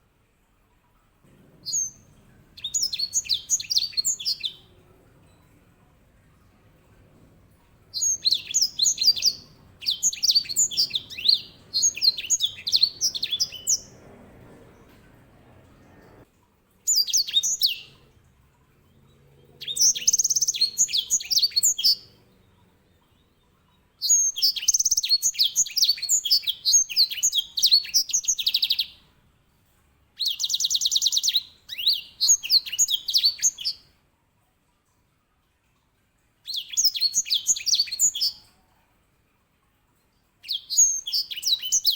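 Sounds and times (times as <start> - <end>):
finch singing rolling song: 1.5 - 5.5, 7.0 - 16.2, 16.9 - 18.0, 19.4 - 22.2, 24.0 - 29.0, 30.2 - 33.8, 36.5 - 38.4, 40.4 - 41.9.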